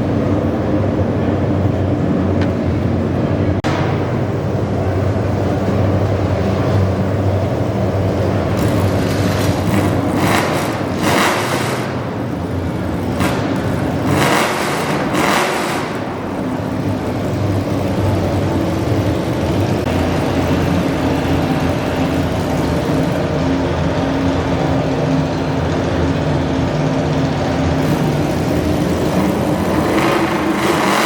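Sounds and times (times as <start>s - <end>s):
tractor engine running loudly: 0.0s - 31.0s
short bursts of engine noise: 8.5s - 23.3s.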